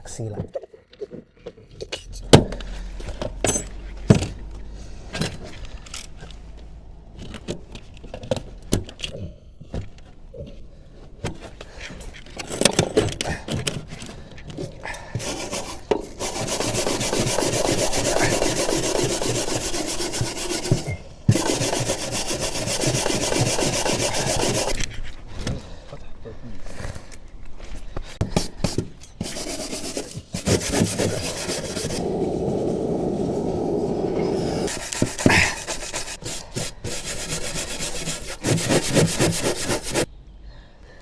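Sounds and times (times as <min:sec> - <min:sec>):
fast rasping scrub: 0:15.2 - 0:24.8, 0:28.5 - 0:32.1, 0:34.3 - 0:40.1.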